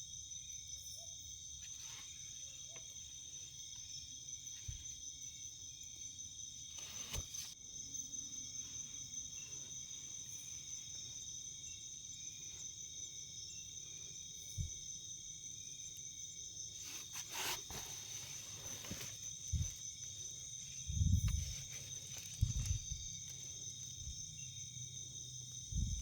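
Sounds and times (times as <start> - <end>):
insects trilling: 0.0 - 26.0
brief rustle: 6.7 - 7.6, 16.8 - 19.8, 21.2 - 23.0.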